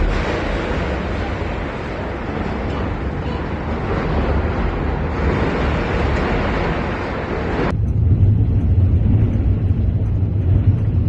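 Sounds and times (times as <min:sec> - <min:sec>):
loud rushing noise: 0:00.0 - 0:02.6
low steady rumble: 0:00.0 - 0:11.0.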